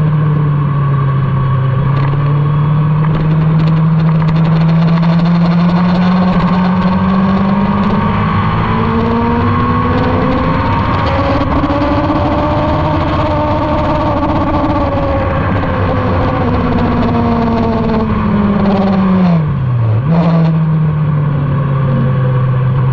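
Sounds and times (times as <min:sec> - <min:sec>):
motorcycle engine pulling: 0:03.0 - 0:19.5
steady rushing noise: 0:03.0 - 0:22.9.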